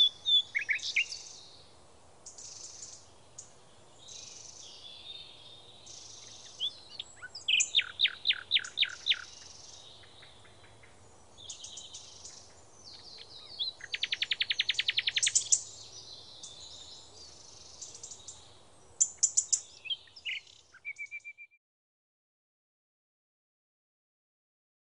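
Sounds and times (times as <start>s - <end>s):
bird trill: 0.0s - 1.4s, 5.8s - 18.4s, 19.0s - 21.6s
birds singing and calling: 0.0s - 1.6s, 2.2s - 21.6s.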